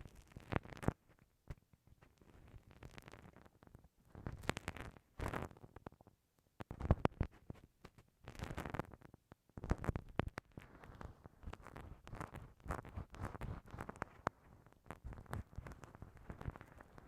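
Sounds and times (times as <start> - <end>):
ear pick scratching microphone: 2.0 - 5.7, 6.6 - 9.0, 9.6 - 17.0.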